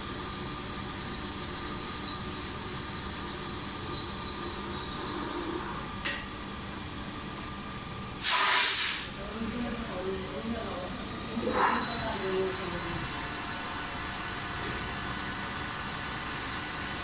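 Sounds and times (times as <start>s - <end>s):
machinery hum: 0.0s - 8.3s, 9.1s - 17.0s
sharp hiss of air: 8.2s - 9.2s.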